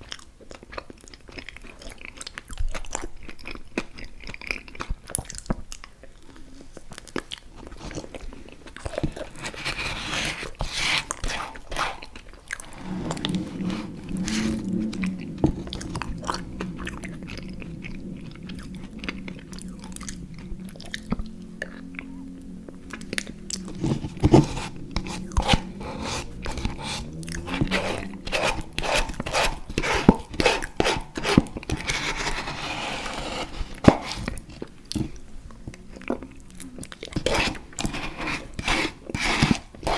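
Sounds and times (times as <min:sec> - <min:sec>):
crunching and chewing: 0:00.0 - 0:39.9
low steady drone: 0:11.2 - 0:38.0.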